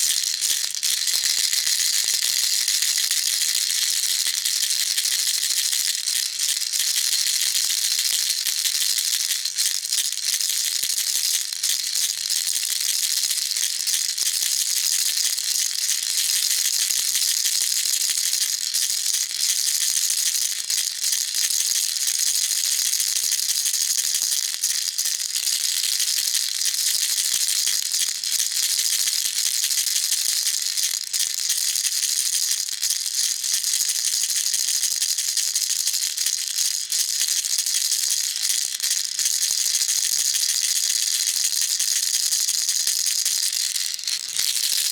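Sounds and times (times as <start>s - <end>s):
baby rattle shaking: 0.0s - 8.5s, 24.1s - 44.9s.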